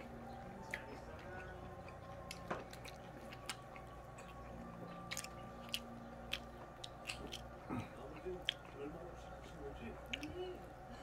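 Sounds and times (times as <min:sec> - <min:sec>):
person chewing food: 0:00.0 - 0:11.0
mouth clicks and smacks: 0:05.1 - 0:07.5.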